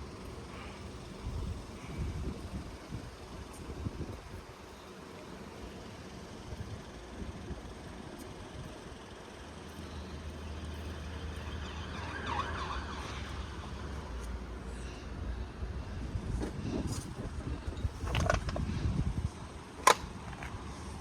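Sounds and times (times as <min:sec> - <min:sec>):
vehicle engine hum: 0:00.0 - 0:21.0.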